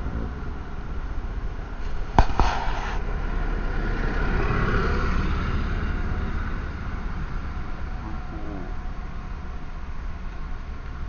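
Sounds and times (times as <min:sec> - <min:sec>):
vehicle engine running: 0:00.0 - 0:11.0
sharp bangs: 0:01.8 - 0:03.2.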